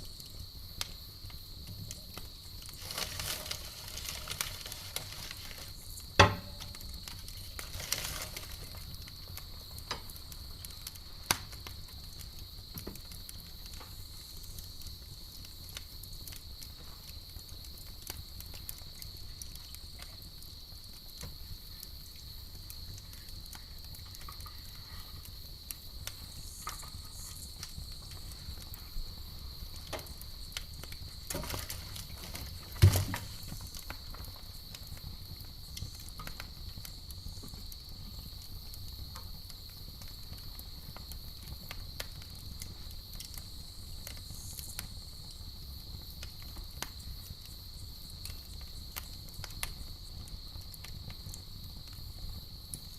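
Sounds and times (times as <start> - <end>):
campfire crackling and popping: 0.0 - 52.9
crickets chirring: 0.0 - 52.9
loud pop with a thump: 6.2 - 6.7, 32.8 - 33.3.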